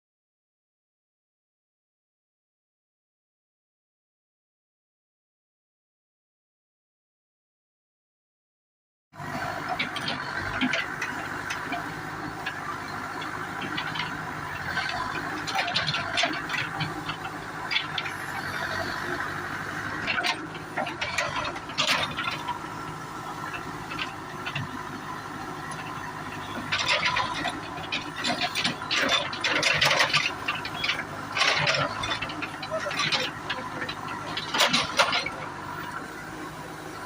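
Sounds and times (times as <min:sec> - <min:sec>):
diesel engine running: 0:09.2 - 0:37.0
metallic clanks and rattles: 0:19.9 - 0:22.6, 0:25.7 - 0:35.5.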